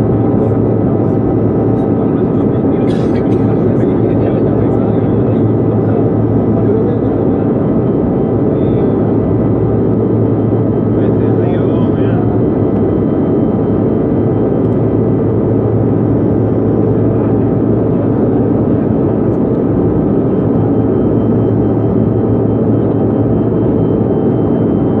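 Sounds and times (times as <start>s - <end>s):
airliner cabin engine drone: 0.0s - 25.0s.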